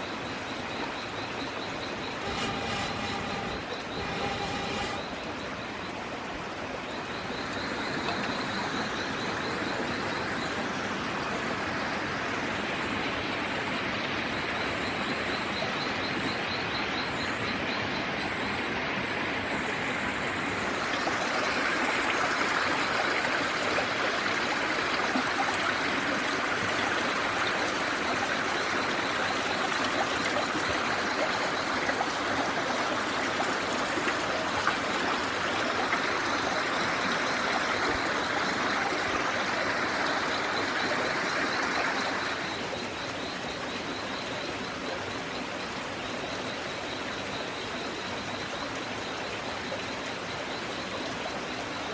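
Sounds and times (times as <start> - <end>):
fast high ticking trill: 2.2 - 5.3
steady rushing noise: 2.2 - 5.4.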